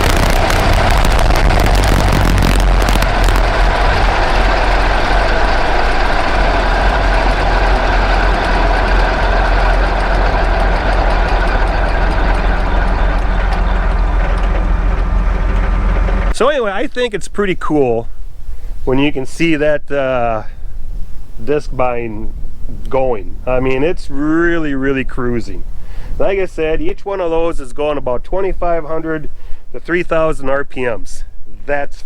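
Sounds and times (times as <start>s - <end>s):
machine clattering: 0.0s - 16.3s
tractor mower droning: 0.0s - 16.4s.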